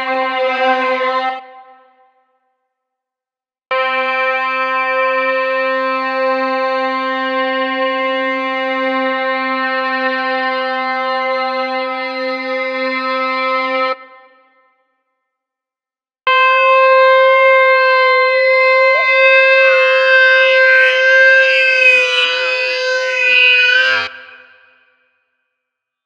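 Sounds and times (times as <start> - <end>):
held synthesizer or organ note: 16.9 - 24.1.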